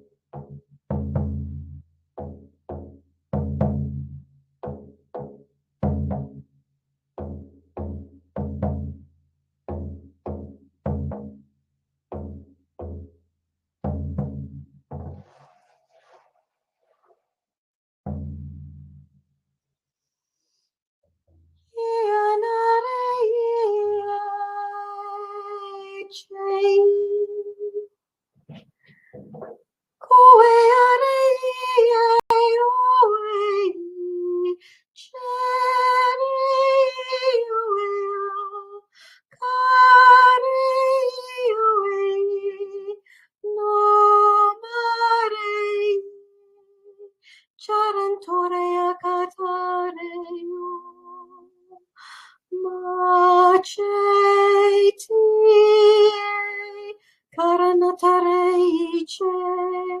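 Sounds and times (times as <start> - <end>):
woman singing wordless tones: 21.8 - 27.9, 30.0 - 60.0
woman breathing: 28.8 - 29.3.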